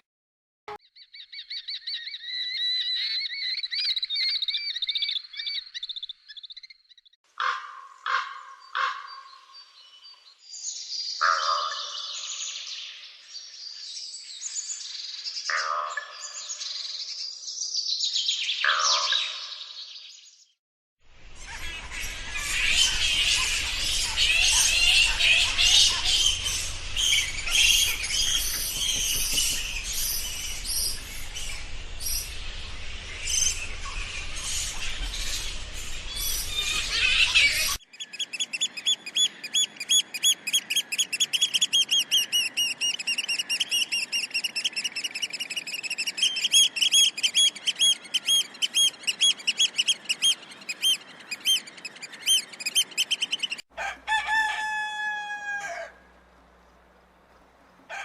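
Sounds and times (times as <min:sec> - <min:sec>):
birds chirping chorus: 0:21.2 - 0:53.7
rapid high chirps: 0:22.5 - 0:53.6
rooster crowing: 0:53.7 - 0:56.1.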